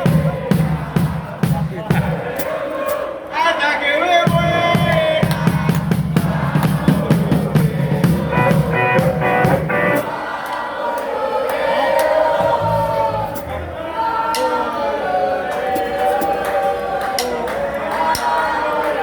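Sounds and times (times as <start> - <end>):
live rock band playing: 8.2 - 10.1
person singing: 8.2 - 10.2.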